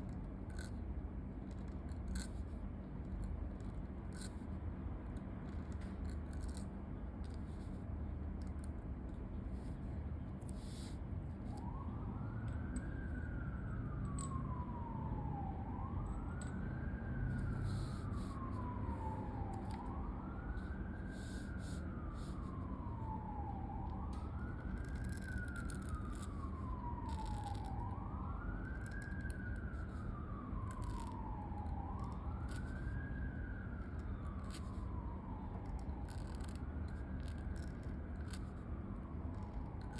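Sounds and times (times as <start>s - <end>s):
pen nib scratching paper: 0.0s - 0.8s, 1.5s - 4.5s, 5.4s - 6.7s, 10.4s - 11.0s, 21.1s - 22.5s, 24.5s - 27.8s, 30.6s - 31.2s, 35.5s - 38.6s
siren wailing: 10.6s - 39.9s.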